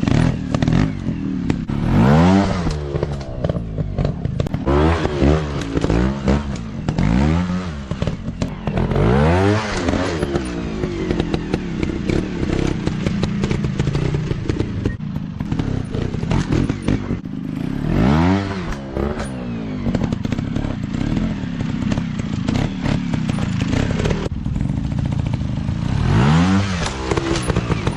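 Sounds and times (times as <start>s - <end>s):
dirt bike engines revving: 0.0s - 27.9s.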